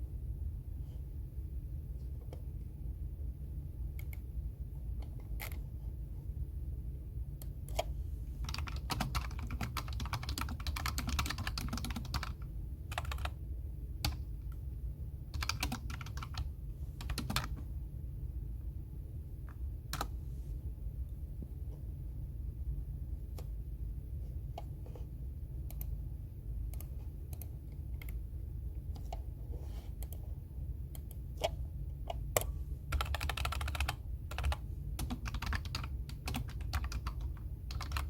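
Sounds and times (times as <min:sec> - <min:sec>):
steady low hum: 0:00.0 - 0:38.0
typing on computer keyboard: 0:08.4 - 0:13.4, 0:15.3 - 0:17.6, 0:32.1 - 0:38.0.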